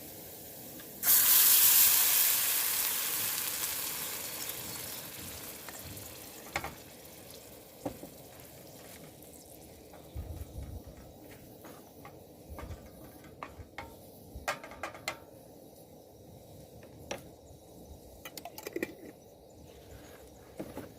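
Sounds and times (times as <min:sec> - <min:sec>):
loud sizzle on hot surface: 0:00.0 - 0:15.3.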